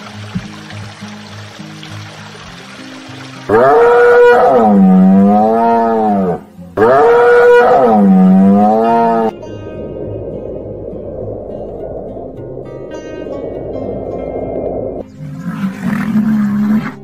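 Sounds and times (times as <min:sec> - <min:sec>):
cow mooing: 0:03.5 - 0:09.3.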